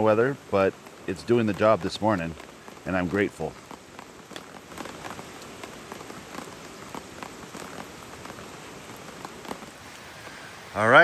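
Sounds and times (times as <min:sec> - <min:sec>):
rain on a tarp: 0:00.0 - 0:11.0.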